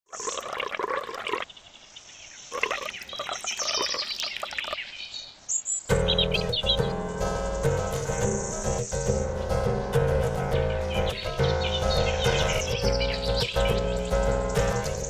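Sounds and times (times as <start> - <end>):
bird-like chirping: 0.1 - 15.0
music with low beat: 5.9 - 15.0.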